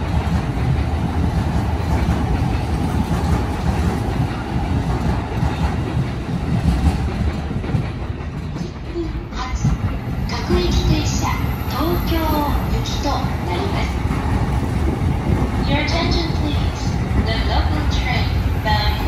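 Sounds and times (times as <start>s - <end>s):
electric train running past: 0.0s - 19.0s
wheels clacking over rail joints: 0.0s - 19.0s.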